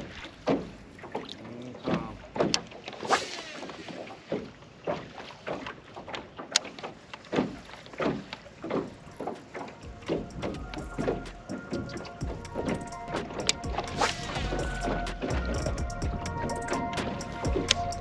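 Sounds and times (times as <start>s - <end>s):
water slapping against boat hull: 0.0s - 18.0s
hull knocking: 8.9s - 18.0s.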